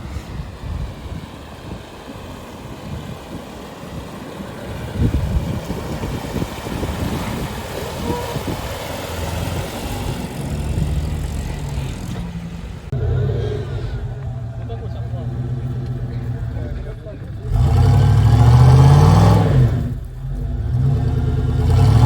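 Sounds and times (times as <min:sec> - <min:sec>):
off-road engine rumbling: 0:00.0 - 0:22.0.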